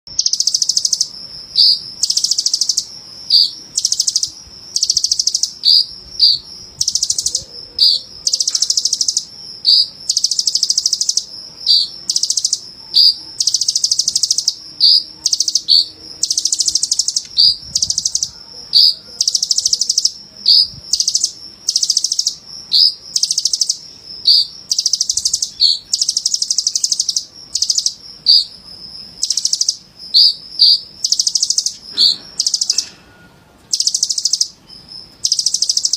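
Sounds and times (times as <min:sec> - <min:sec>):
bird trilling song: 0:00.1 - 0:35.9
bird chips: 0:23.2 - 0:33.0.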